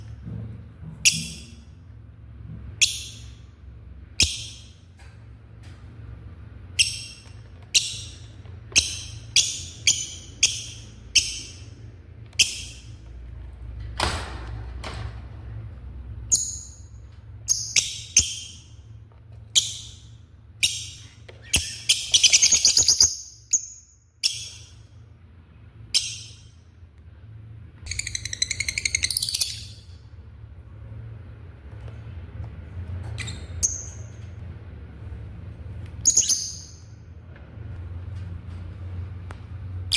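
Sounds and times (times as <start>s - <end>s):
lovebirds chirping and chattering: 6.6s - 13.2s, 16.2s - 25.0s, 25.6s - 26.7s, 27.8s - 30.2s, 35.9s - 37.0s.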